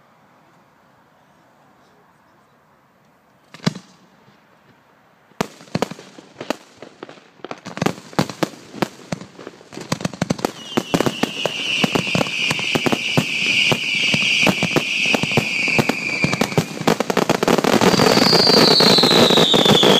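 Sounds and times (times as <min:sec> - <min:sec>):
fireworks bangs and crackles: 0:05.4 - 0:19.9
high falling whistle: 0:10.6 - 0:16.6, 0:17.9 - 0:19.9.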